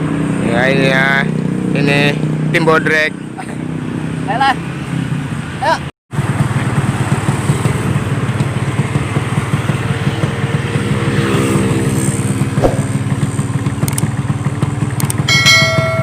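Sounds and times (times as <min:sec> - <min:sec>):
motorcycle engine rough pulsing: 0:06.2 - 0:16.0.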